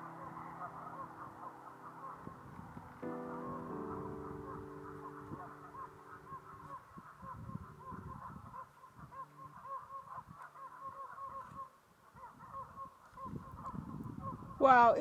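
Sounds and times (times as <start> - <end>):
low sustained tones: 0.0 - 11.4
short repeated bird calls: 0.0 - 14.6.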